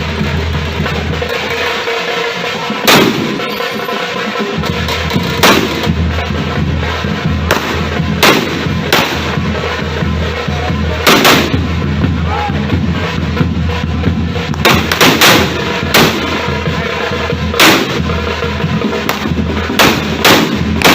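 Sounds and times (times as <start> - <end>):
fireworks bangs: 2.6 - 4.0, 4.7 - 10.0, 10.9 - 12.0, 12.7 - 20.9.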